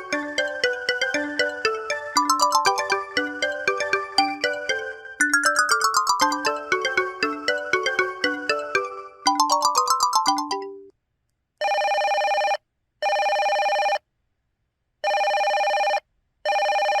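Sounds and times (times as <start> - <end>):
chiming ringtone melody: 0.0 - 10.9.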